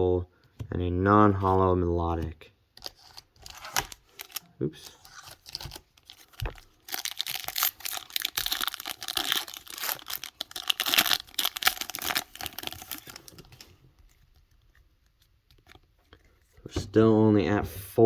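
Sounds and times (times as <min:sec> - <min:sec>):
foil wrapper tearing and crinkling: 0:02.8 - 0:13.8.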